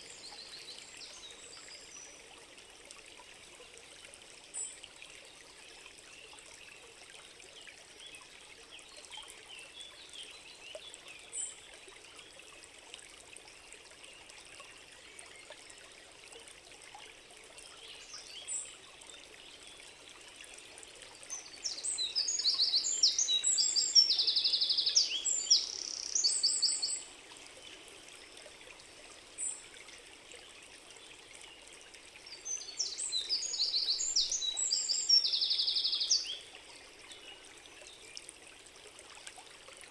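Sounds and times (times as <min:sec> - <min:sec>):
forest stream running: 0:00.0 - 0:39.9
songbird trilling song: 0:21.4 - 0:27.1, 0:32.3 - 0:36.5.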